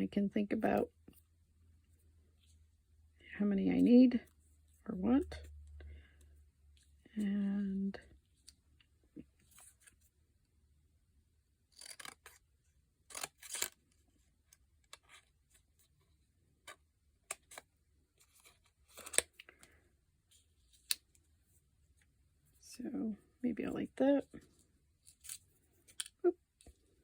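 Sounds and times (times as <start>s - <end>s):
scissors snipping paper: 11.7s - 12.4s, 13.1s - 13.8s.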